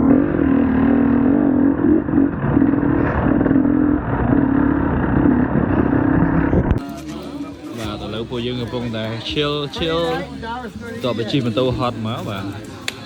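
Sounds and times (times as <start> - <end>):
motorcycle engine revving: 0.0 - 6.8.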